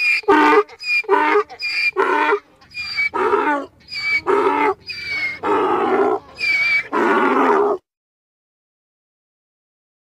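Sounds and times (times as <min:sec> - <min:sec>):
donkey braying: 0:00.0 - 0:07.8.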